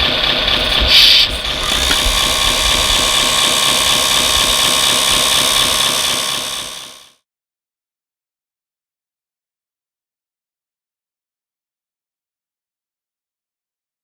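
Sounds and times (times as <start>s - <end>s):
electric motor whine: 0.2s - 7.2s
hydraulic hiss: 0.5s - 7.2s.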